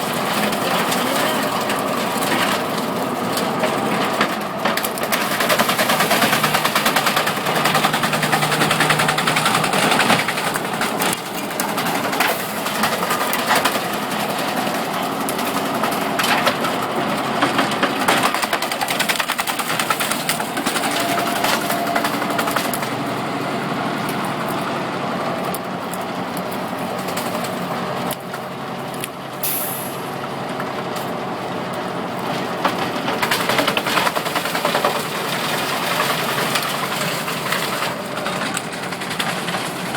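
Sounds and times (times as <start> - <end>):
wood chipper engine under load: 0.0 - 39.9
wood cracking and snapping: 0.1 - 23.2, 32.6 - 39.9.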